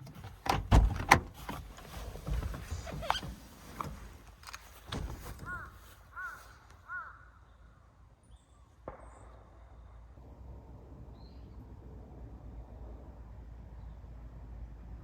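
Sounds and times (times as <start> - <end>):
bird calling: 5.4 - 7.3.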